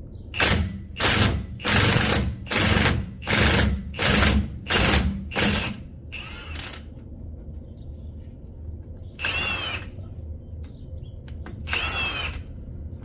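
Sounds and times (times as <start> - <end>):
impact wrench hammering: 0.4 - 6.6.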